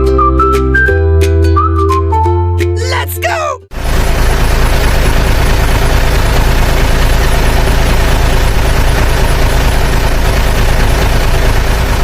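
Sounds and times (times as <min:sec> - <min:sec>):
heavy engine rumbling: 0:03.3 - 0:12.0.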